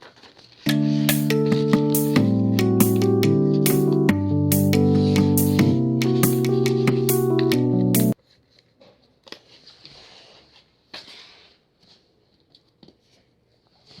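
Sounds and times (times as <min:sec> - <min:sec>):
paper rustling: 0:00.0 - 0:00.7
background music: 0:00.7 - 0:08.2.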